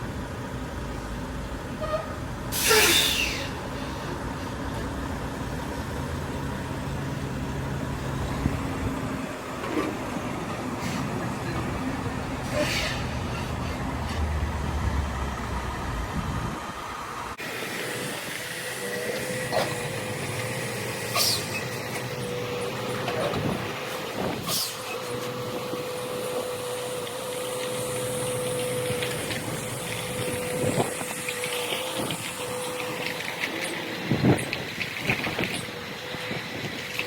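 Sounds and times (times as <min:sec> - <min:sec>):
truck engine hum: 0:00.0 - 0:37.0
air brake hisses: 0:02.5 - 0:04.1, 0:12.4 - 0:13.5, 0:21.1 - 0:21.6.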